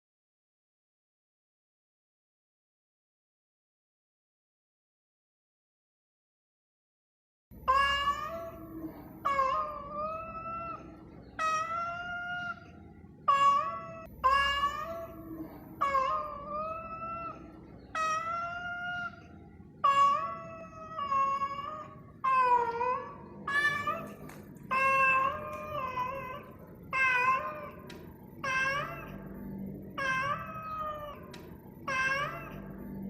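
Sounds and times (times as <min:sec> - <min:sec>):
cat meowing: 0:07.7 - 0:33.0.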